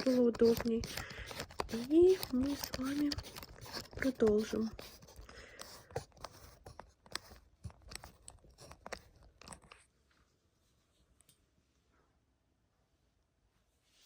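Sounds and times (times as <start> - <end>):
phone handling clicks and rubs: 0.0 - 9.8.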